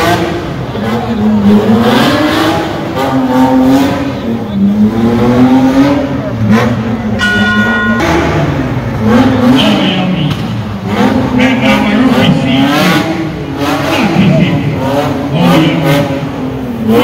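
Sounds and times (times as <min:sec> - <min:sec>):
car engine revving: 0:00.0 - 0:17.0
high-pitched tone: 0:07.2 - 0:09.9.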